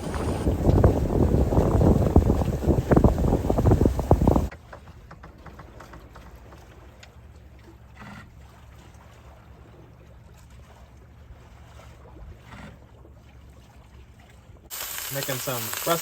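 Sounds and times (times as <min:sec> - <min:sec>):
wind buffeting microphone: 0:00.0 - 0:04.5
faint crackles: 0:14.7 - 0:16.0.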